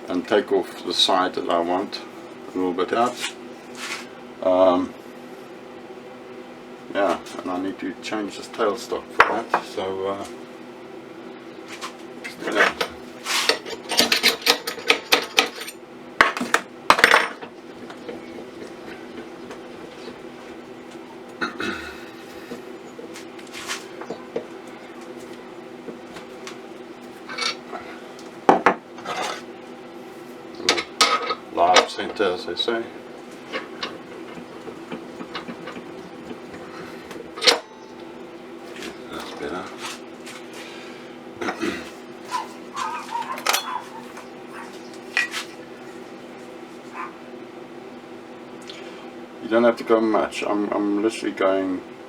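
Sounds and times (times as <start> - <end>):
steady machine hum: 0.0 - 52.0
metal parts clinking: 12.6 - 15.8, 43.3 - 43.8.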